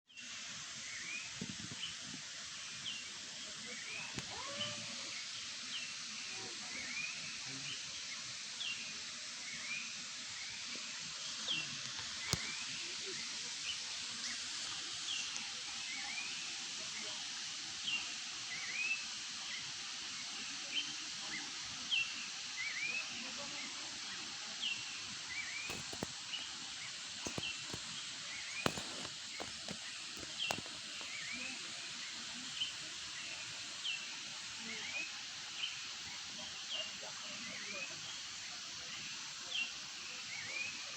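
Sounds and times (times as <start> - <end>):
steady high hiss: 0.1 - 40.9
birds chirping: 25.3 - 26.4, 27.2 - 31.6.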